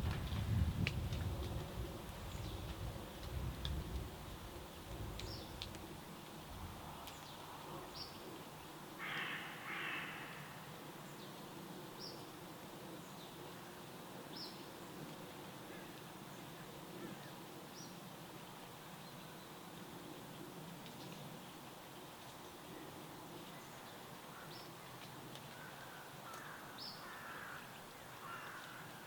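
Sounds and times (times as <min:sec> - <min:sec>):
steady background hiss: 0:00.9 - 0:29.0.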